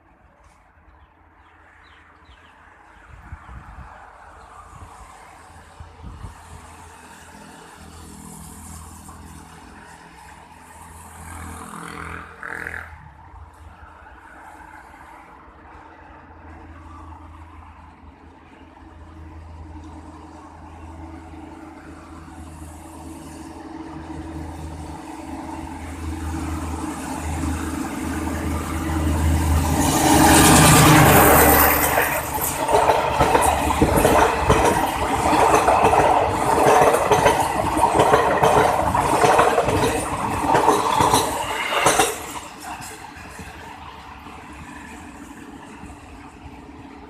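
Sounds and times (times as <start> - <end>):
diesel locomotive engine drone: 2.5 - 47.0
train wheels clacking on rail joints: 22.5 - 46.4.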